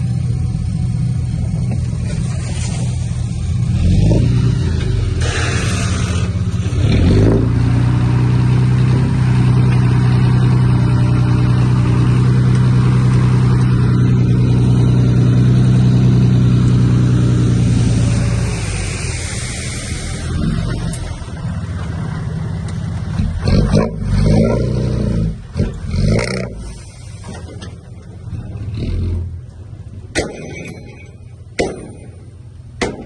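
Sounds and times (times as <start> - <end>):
heavy diesel engine revving: 0.0 - 30.0
rush of noise: 17.4 - 21.6.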